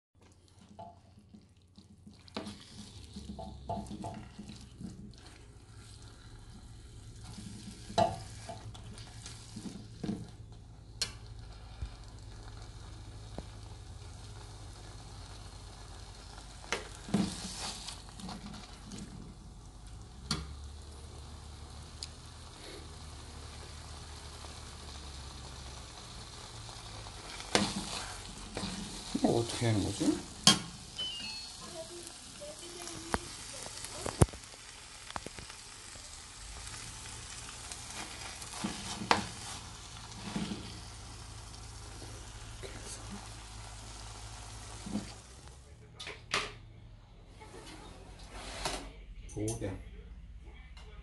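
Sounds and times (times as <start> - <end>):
food sizzling in a pan: 0.2 - 45.7
metal spoon scraping a pan: 27.2 - 29.3.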